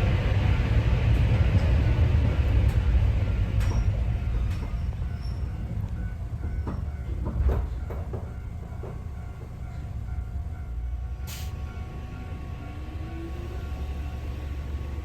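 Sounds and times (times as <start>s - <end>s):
train car clanks: 0.0s - 11.9s
train wheels rumbling: 0.0s - 15.0s.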